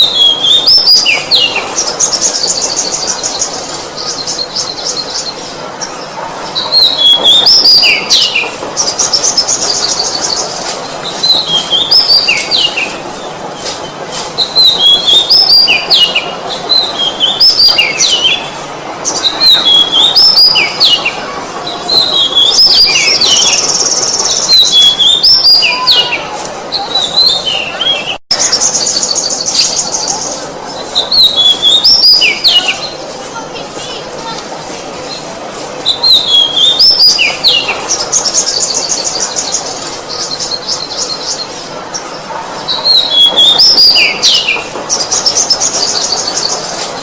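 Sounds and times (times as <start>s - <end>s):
songbird whistling and trilling: 14.4s - 18.5s, 19.2s - 21.1s, 21.9s - 26.2s, 31.0s - 33.0s, 35.8s - 39.4s, 42.7s - 46.5s.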